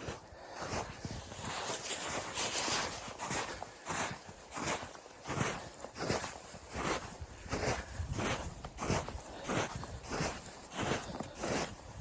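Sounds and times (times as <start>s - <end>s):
rustling and crunching: 1.4s - 3.6s.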